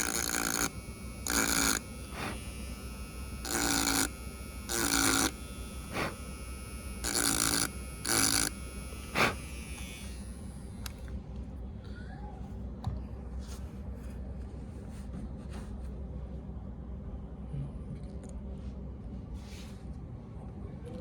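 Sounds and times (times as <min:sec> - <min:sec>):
scraping on circuit board: 0:00.0 - 0:10.0.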